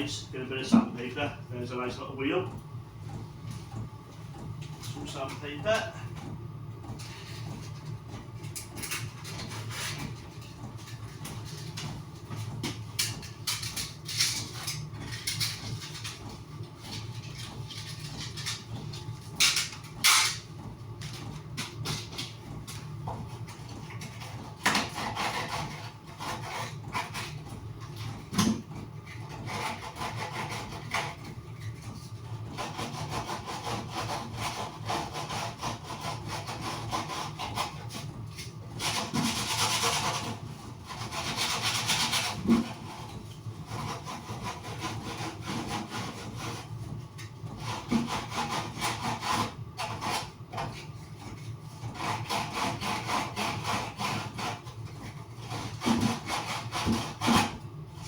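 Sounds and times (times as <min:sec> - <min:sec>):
sandpaper rasping: 0:38.8 - 0:43.0, 0:52.0 - 0:54.6.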